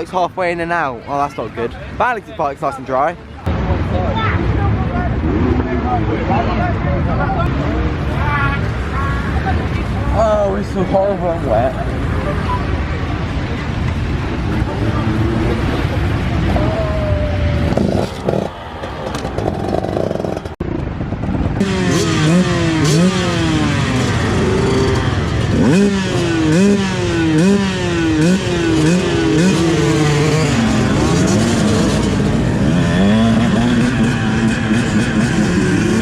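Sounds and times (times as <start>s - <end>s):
motocross bike engine revving: 17.6s - 20.8s, 21.5s - 36.0s.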